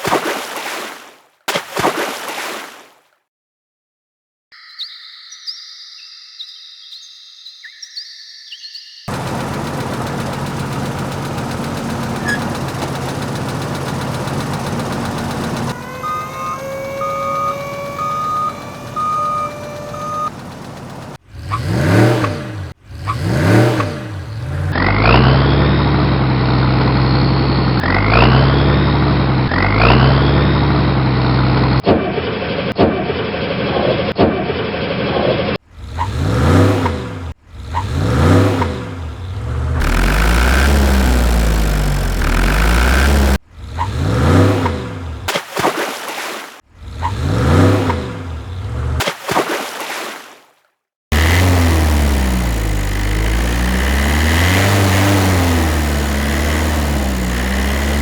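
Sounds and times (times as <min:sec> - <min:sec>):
dull engine shifting up: 0:09.0 - 0:31.8, 0:35.6 - 0:45.3, 0:46.8 - 0:49.0, 0:51.1 - 0:58.0
vehicle engines revving: 0:09.1 - 0:31.8, 0:35.6 - 0:45.3, 0:46.7 - 0:49.0, 0:51.1 - 0:58.0.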